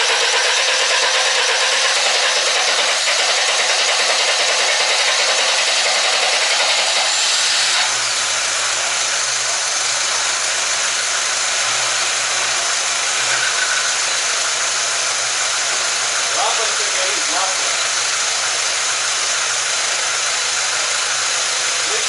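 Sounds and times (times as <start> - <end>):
starter cranking engine: 0.0 - 22.0
car engine idling: 7.9 - 22.0.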